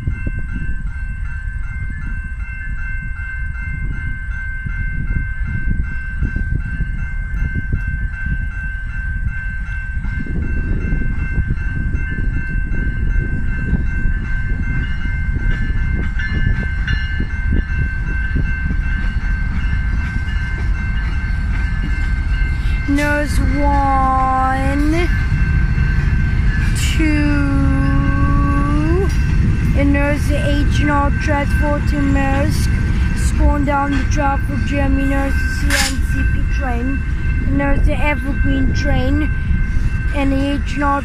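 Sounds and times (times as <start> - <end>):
crossing warning bell ringing: 0.0 - 41.0
freight train rumbling past: 0.0 - 41.0.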